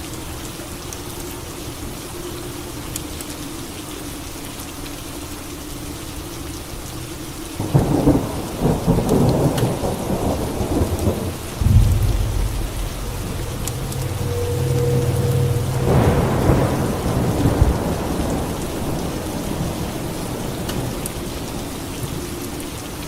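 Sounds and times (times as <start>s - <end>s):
steady rain falling: 0.0s - 23.0s
thunderclap: 7.7s - 19.5s
deep rolling thunder rumble: 7.7s - 21.5s.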